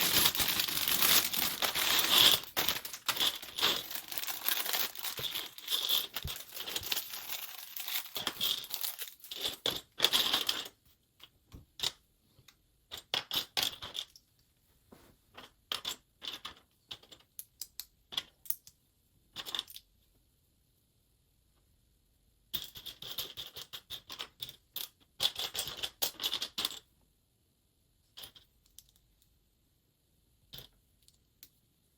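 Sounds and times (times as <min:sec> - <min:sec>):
plastic bags crinkling and tearing: 0:00.0 - 0:09.6
small plastic pieces clicking: 0:00.0 - 0:10.6.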